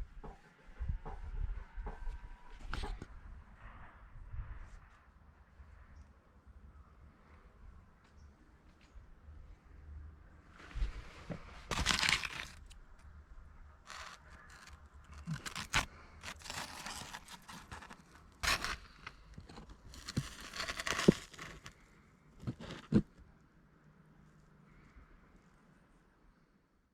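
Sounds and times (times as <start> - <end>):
scraping and tearing: 10.8 - 13.1, 13.7 - 23.2.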